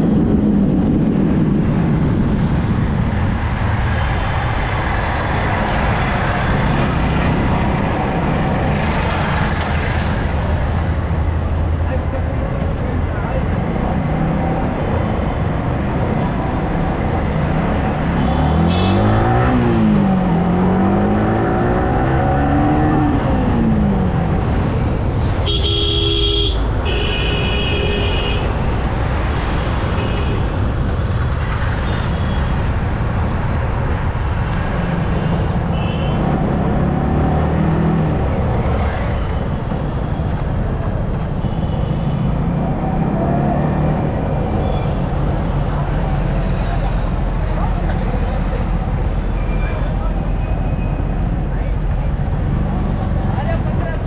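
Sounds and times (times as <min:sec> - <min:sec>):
road noise: 0:00.0 - 0:54.0
vehicle horn honking: 0:18.2 - 0:19.2, 0:25.5 - 0:28.5.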